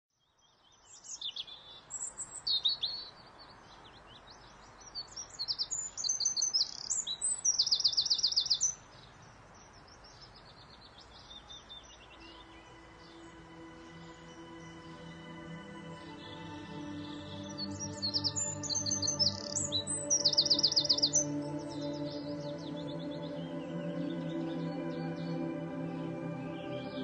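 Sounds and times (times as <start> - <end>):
soft outdoor hiss: 0.2 - 27.0
soft sustained music notes: 0.8 - 27.0
birds chirping and whistling: 4.9 - 8.8, 10.1 - 27.0.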